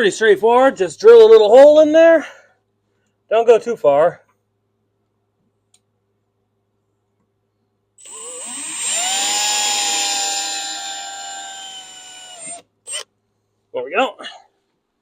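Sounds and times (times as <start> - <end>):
power drill whining: 8.0 - 13.1.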